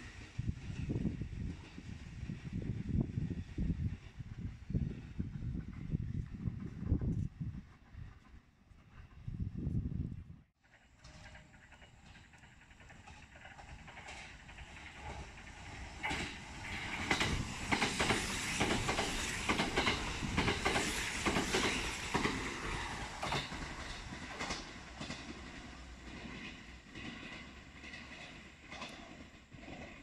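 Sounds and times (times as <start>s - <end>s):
electric train passing: 10.6s - 30.0s
wheels clicking over rail joints: 10.6s - 30.0s.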